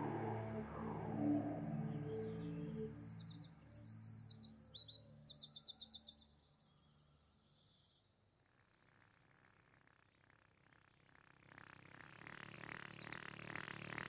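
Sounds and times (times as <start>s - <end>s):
soft music: 0.0s - 5.2s
songbird chirping and trilling: 0.0s - 9.0s, 12.4s - 14.0s.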